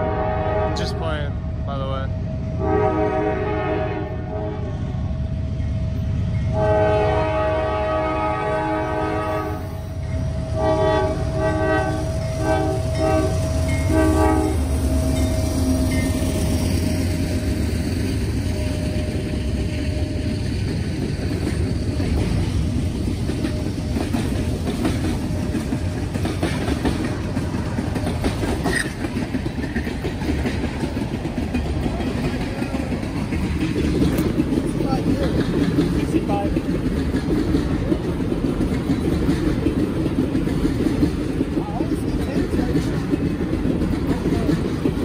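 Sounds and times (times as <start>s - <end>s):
locomotive horn blasts: 0.0s - 1.0s, 2.6s - 4.7s, 6.5s - 9.8s, 10.6s - 15.2s
locomotive engine rumble: 0.0s - 45.0s.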